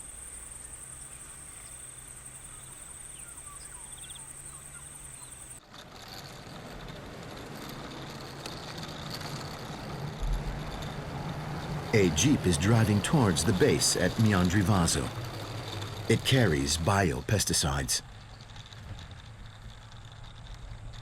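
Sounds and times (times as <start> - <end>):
faint bird chirps: 0.0 - 5.6
high-pitched insect trill: 0.0 - 5.6
vehicle engine rumbling: 6.2 - 21.0.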